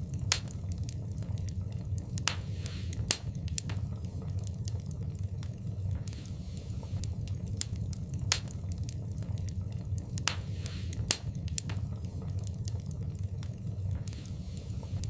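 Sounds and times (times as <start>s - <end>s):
fire flames rumbling: 0.0s - 15.0s
wood fire crackling and popping: 0.0s - 15.0s.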